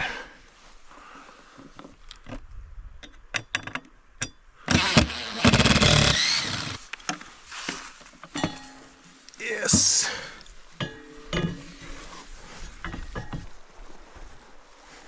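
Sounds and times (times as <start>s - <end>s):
drill handling clicks: 4.7s - 6.8s
power drill motor whining: 4.7s - 6.8s.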